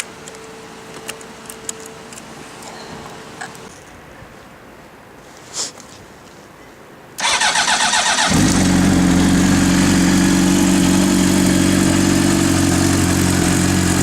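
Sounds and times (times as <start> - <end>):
electric starter cranking: 7.2 - 10.9
motorcycle engine idling: 7.2 - 14.0.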